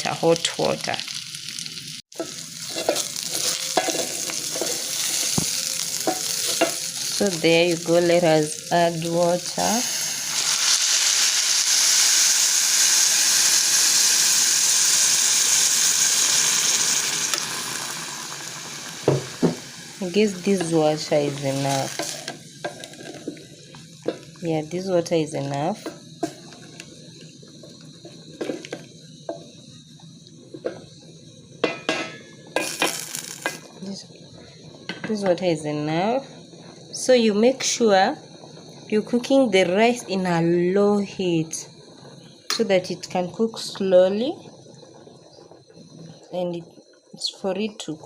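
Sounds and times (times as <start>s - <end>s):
water hissing in hot pot: 0.0s - 48.0s
spoon knocking metal pot: 31.6s - 33.6s.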